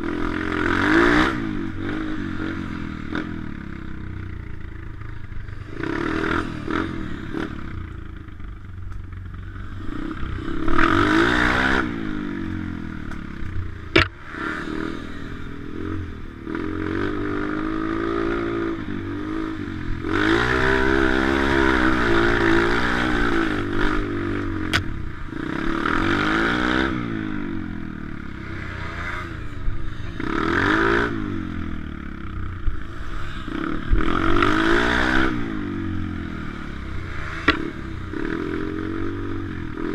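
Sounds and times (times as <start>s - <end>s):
motorbike engine revving: 0.0s - 39.9s
sharp knocks: 13.9s - 14.2s.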